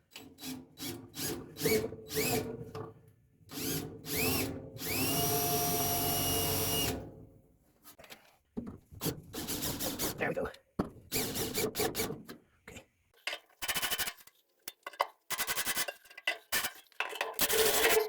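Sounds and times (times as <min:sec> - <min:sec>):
power drill drilling sheet steel: 0:01.2 - 0:02.5, 0:03.5 - 0:07.0.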